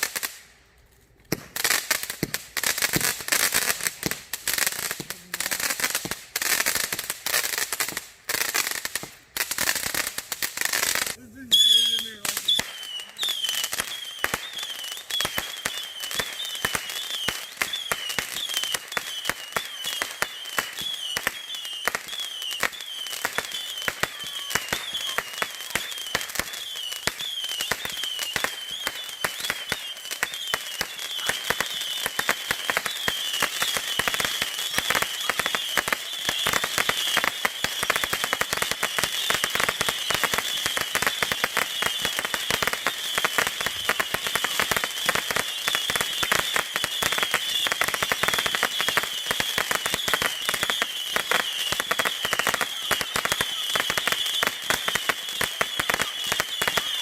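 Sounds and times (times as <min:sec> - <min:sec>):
fireworks crackling: 0:00.0 - 0:57.0
high warbling whistle: 0:11.4 - 0:15.8.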